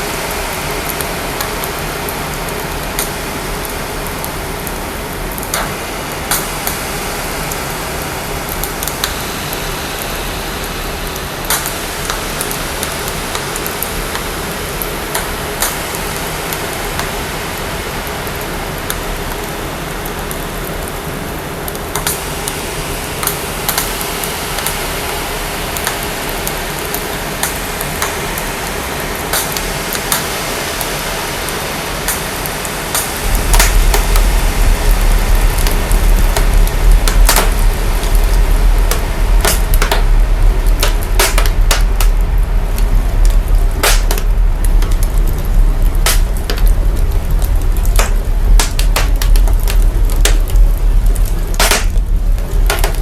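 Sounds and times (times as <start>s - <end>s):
fire crackling and hissing: 0.0s - 53.0s
sharp pops: 8.5s - 14.3s, 32.1s - 34.8s, 35.6s - 40.2s, 40.8s - 42.2s, 43.8s - 45.0s, 46.0s - 46.7s, 47.9s - 50.6s, 51.5s - 53.0s
deep sub-bass rumble: 33.2s - 53.0s.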